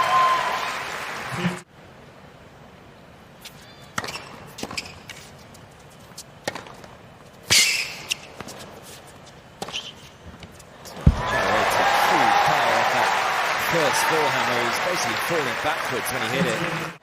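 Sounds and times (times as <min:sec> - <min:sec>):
racket hitting tennis ball: 0:03.9 - 0:05.4, 0:06.2 - 0:09.0
sneaker squeak on court: 0:04.0 - 0:05.1, 0:07.5 - 0:08.3, 0:09.6 - 0:10.1.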